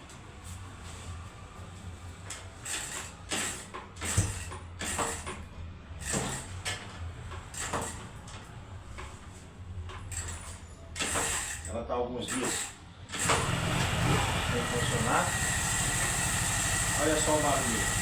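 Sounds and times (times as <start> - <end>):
motorcycle being kick-started: 12.4 - 18.0.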